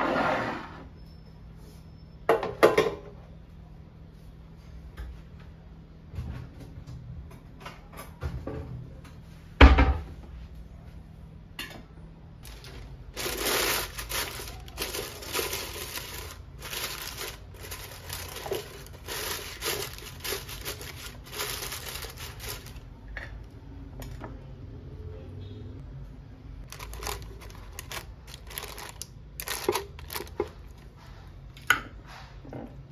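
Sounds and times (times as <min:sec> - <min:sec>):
wax paper crinkling: 0:12.4 - 0:22.9, 0:26.6 - 0:31.0.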